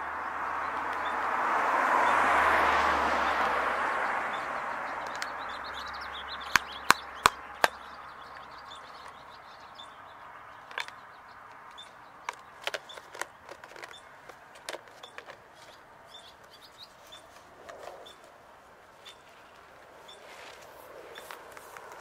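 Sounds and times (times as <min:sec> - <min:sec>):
small birds chirping: 0:00.0 - 0:22.0
sharp clicks: 0:05.0 - 0:09.6, 0:10.6 - 0:18.3.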